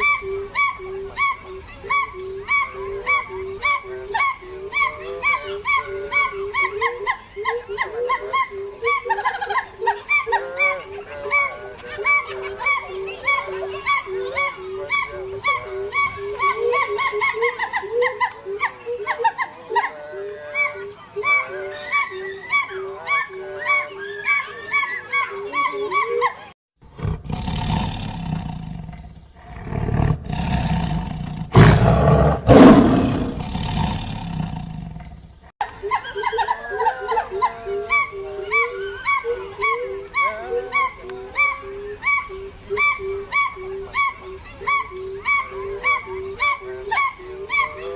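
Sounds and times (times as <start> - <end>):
bird calls: 0.0 - 47.9
lion roaring: 26.9 - 35.2.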